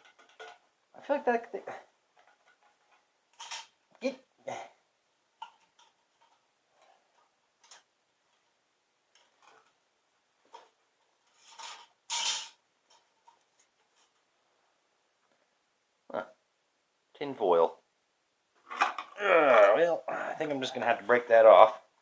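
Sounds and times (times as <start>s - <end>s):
scraping and rustling: 10.4s - 14.3s.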